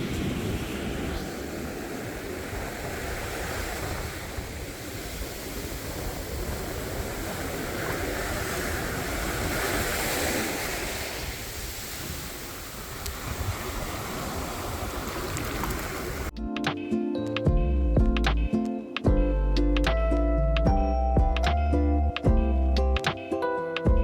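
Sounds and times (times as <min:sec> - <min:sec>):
sea waves washing on beach: 0:00.0 - 0:16.3
wind buffeting microphone: 0:00.0 - 0:16.3.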